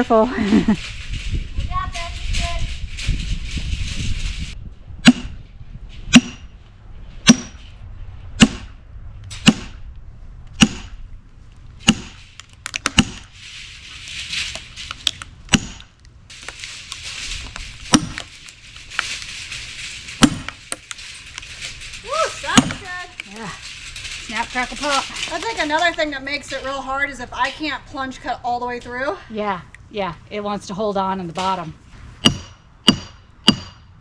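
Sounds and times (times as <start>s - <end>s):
sledgehammer striking steel wedge: 5.0s - 5.4s, 6.1s - 6.6s, 7.2s - 7.7s, 8.4s - 9.9s, 10.6s - 11.0s, 11.8s - 13.3s, 15.5s - 15.9s, 17.9s - 18.3s, 20.2s - 20.9s, 22.4s - 22.9s, 32.2s - 33.9s.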